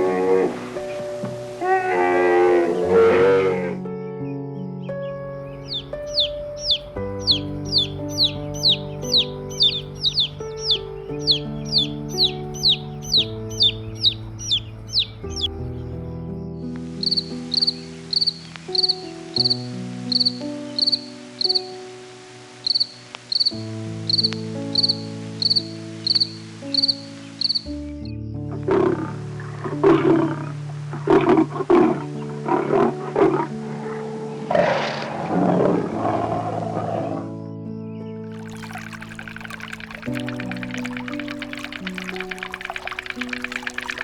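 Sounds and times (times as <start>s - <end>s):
background music: 0.0s - 44.0s
loud rough animal calls: 1.6s - 3.8s.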